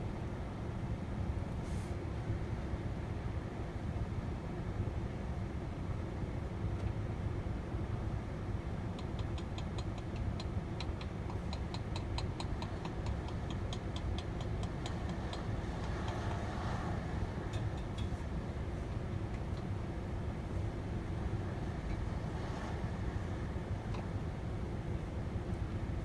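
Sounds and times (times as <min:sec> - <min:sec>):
low vehicle rumble: 0:08.8 - 0:26.0
hammering on metal: 0:11.0 - 0:16.4.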